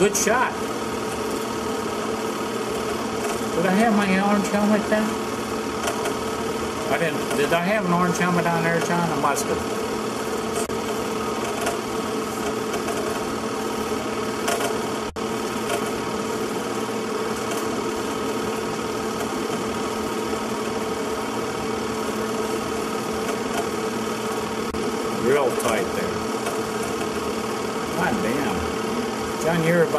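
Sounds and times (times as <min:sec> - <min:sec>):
mechanical whir and hum: 0:00.0 - 0:29.9.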